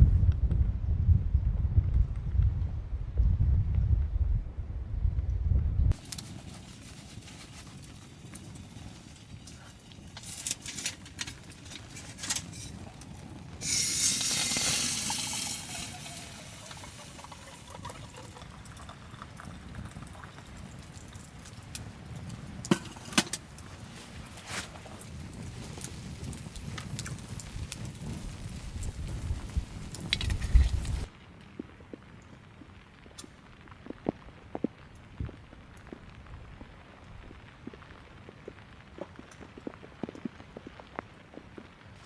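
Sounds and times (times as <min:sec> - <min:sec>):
liquid pouring: 0:13.6 - 0:21.3.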